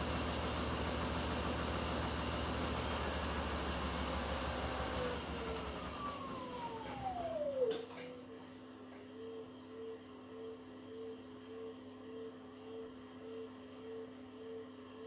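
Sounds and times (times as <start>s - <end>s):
motor whine falling: 4.2s - 8.0s.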